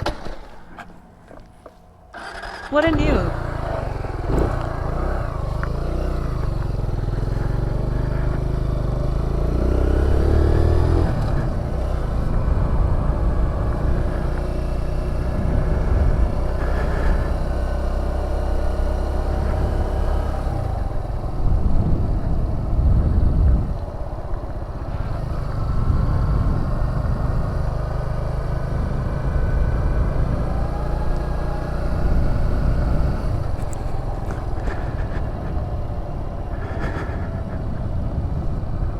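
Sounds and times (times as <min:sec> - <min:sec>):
motorcycle engine revving: 0:02.1 - 0:38.9.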